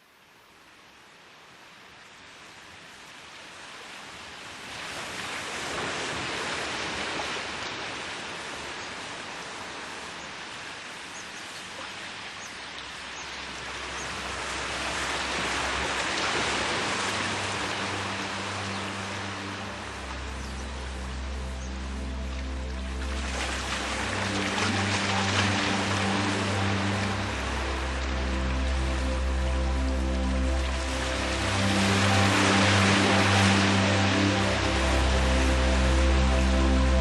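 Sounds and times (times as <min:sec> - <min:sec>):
sea waves washing in: 0:02.4 - 0:37.0
low sustained music notes: 0:12.9 - 0:37.0.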